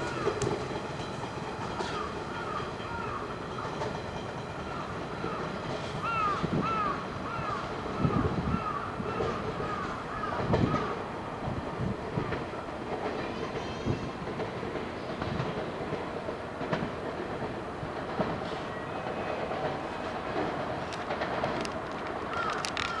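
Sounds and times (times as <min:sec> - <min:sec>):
train wheels clattering over rail joints: 0:00.0 - 0:23.0
crow cawing: 0:01.9 - 0:03.3, 0:06.0 - 0:10.9, 0:22.3 - 0:23.0.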